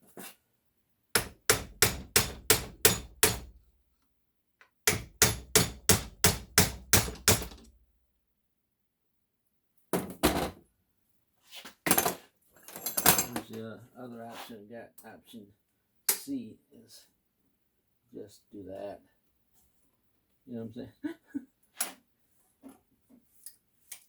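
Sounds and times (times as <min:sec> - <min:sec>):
hammer tapping on metal: 0:01.2 - 0:03.6, 0:04.9 - 0:07.7.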